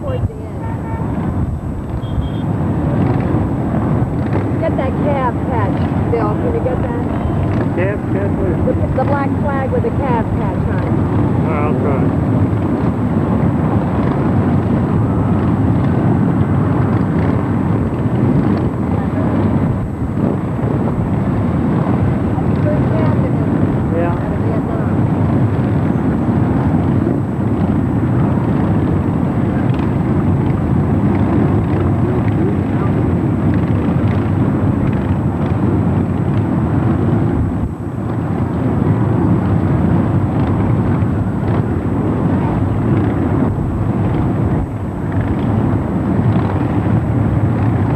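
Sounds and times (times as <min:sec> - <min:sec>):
voices: 0:00.0 - 0:01.2, 0:04.6 - 0:12.1, 0:18.8 - 0:19.8, 0:22.2 - 0:25.0
motorcycle engines rumbling: 0:00.0 - 0:47.9.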